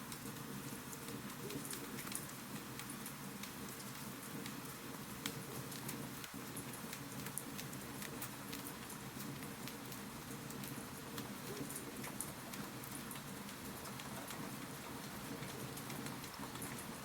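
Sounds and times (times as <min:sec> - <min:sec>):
wood fire crackling: 0:01.2 - 0:17.0.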